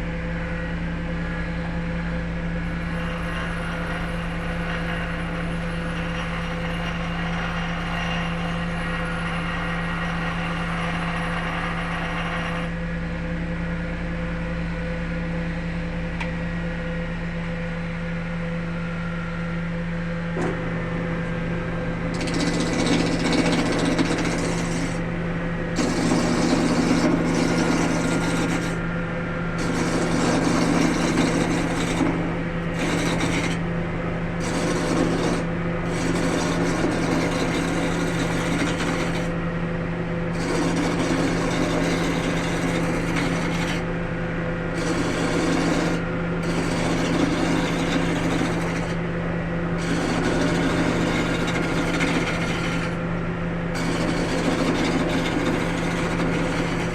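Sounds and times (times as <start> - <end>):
wood lathe motor hum: 2.7 - 12.8, 20.4 - 56.9
tool scraping spinning wood: 2.8 - 12.7, 20.4 - 39.5, 40.2 - 49.1, 49.7 - 56.9.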